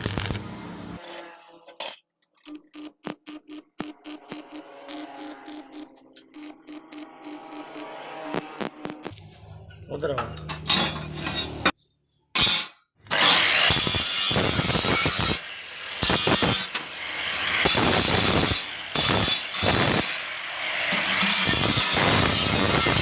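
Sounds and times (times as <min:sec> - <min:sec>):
rasping metalworking on iron pipe: 0:03.8 - 0:09.0, 0:13.3 - 0:23.0.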